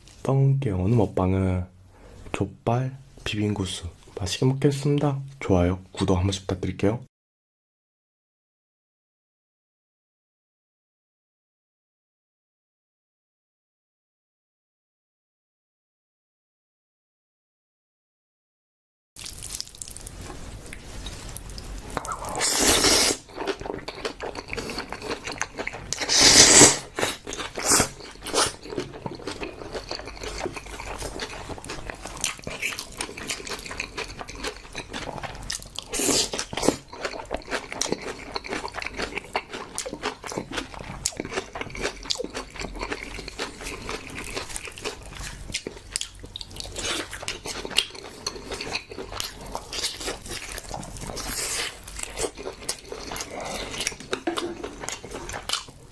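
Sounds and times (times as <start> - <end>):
person chewing food: 19.2 - 55.9.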